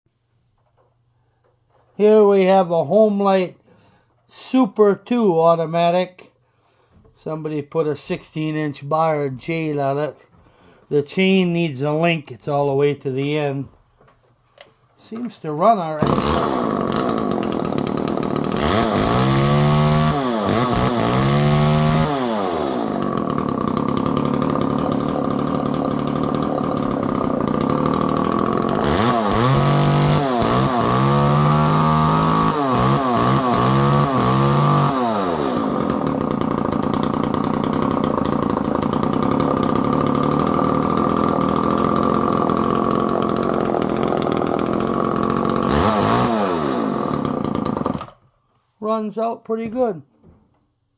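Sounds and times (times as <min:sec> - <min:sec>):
chainsaw engine revving and idling: 0:16.0 - 0:48.1.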